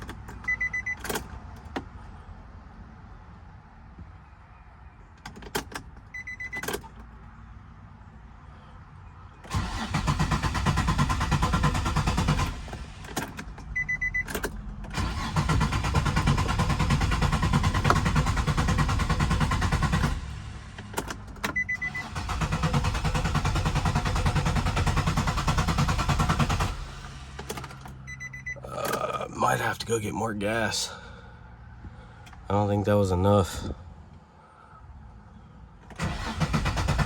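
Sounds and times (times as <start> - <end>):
starter cranking engine: 9.5 - 12.9, 14.4 - 20.3, 21.6 - 27.7, 35.9 - 37.0
short beep: 28.1 - 28.8.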